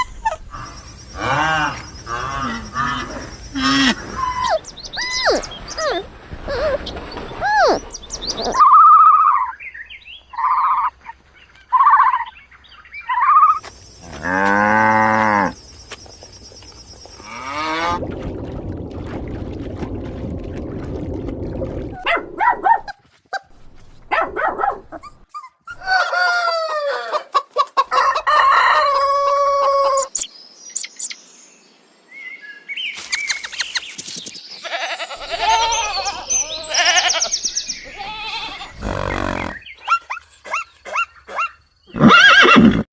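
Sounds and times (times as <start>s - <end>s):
farm animal calls: 0.0s - 9.5s, 34.6s - 42.8s
rooster crowing: 25.8s - 27.3s, 27.9s - 30.1s
chickens clucking: 26.8s - 30.2s.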